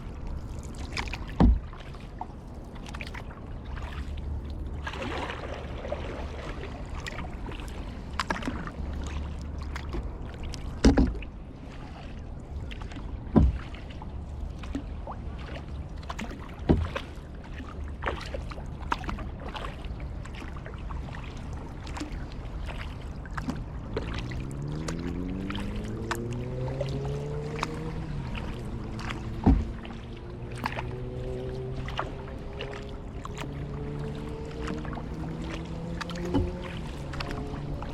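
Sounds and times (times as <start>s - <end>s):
paddle splashing water: 0.0s - 37.9s
paddle clicks: 0.3s - 4.2s, 7.0s - 11.3s, 21.2s - 37.9s.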